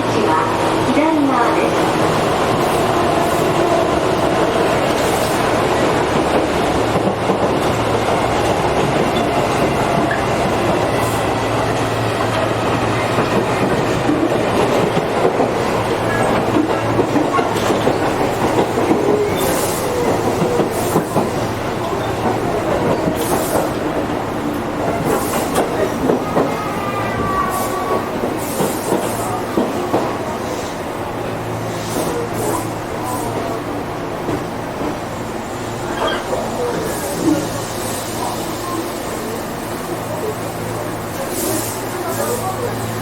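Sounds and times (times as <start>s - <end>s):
train running noise with low hum: 0.0s - 43.0s
train wheels clacking over rail joints: 4.5s - 24.2s, 24.8s - 26.6s, 28.2s - 30.7s.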